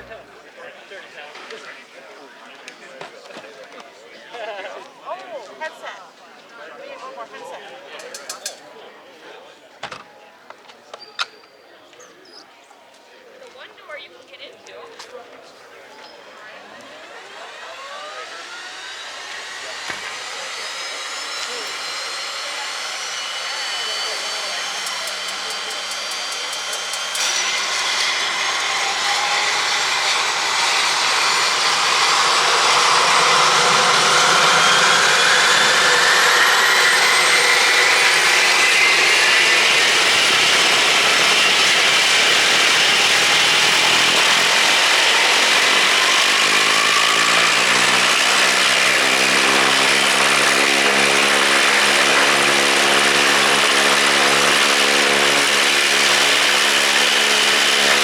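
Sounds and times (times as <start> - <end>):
propeller aircraft engine running: 0.0 - 0.3, 17.2 - 58.0.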